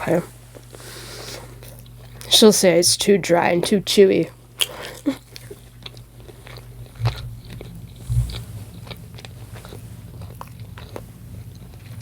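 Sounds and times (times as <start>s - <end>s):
person chewing: 4.6s - 12.0s
dull low thumps: 7.0s - 11.5s.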